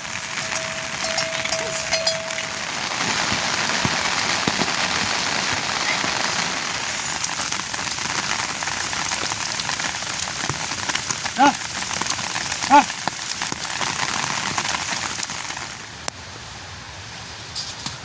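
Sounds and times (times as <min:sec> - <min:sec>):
heavy rain hissing: 0:00.0 - 0:17.0
short pitched call: 0:11.4 - 0:11.6, 0:12.7 - 0:12.9.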